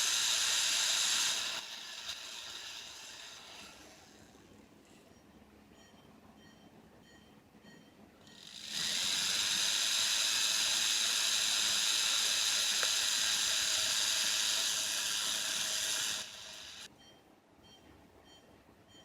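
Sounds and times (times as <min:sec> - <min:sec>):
high-pitched rotary motor whine: 0:00.0 - 0:04.6, 0:08.2 - 0:16.9.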